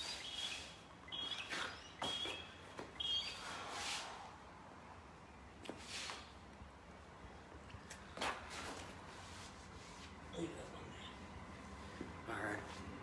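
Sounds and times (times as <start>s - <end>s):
bird chirping: 0.0s - 3.7s
exercise mat scuffs and rustles: 0.0s - 4.4s, 5.6s - 6.4s, 7.9s - 10.4s.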